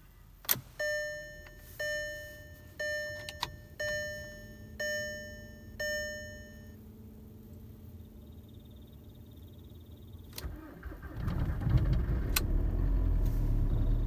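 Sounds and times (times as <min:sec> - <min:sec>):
faint steady hum: 0:00.0 - 0:11.1
dashboard warning chime: 0:00.7 - 0:06.8.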